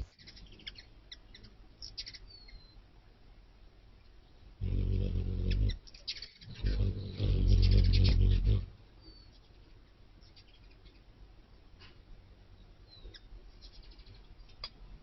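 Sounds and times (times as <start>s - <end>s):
loud low buzz: 4.6s - 5.8s, 6.5s - 8.8s
hummingbird chips: 4.8s - 8.7s.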